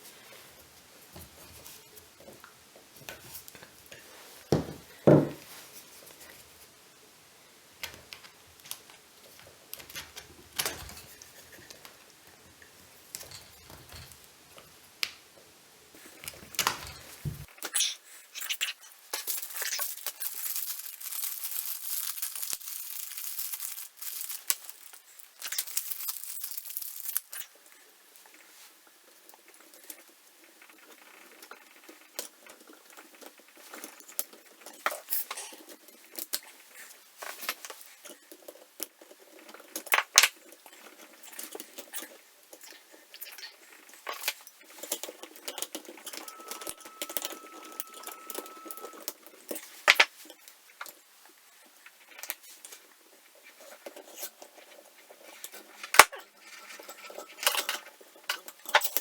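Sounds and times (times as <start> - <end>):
small parts clicking and tapping: 16.2 - 27.7, 37.2 - 51.0
packaging rustling: 19.2 - 27.5.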